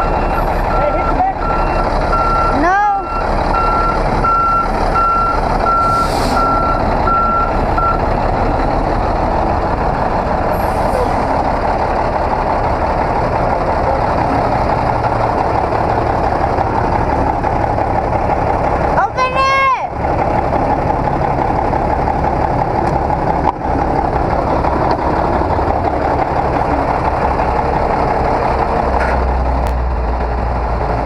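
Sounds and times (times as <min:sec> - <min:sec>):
backup alarm beeping: 0:00.0 - 0:08.0
diesel truck engine running: 0:00.0 - 0:31.0.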